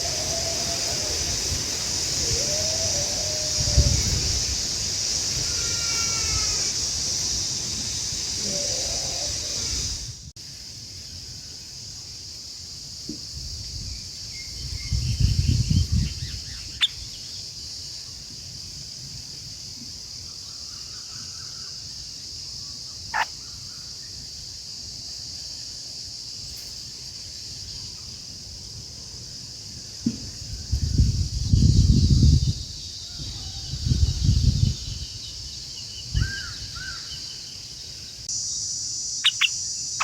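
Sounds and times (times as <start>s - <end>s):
high-pitched hiss: 0.0s - 40.0s
faint bird calls: 39.2s - 39.6s.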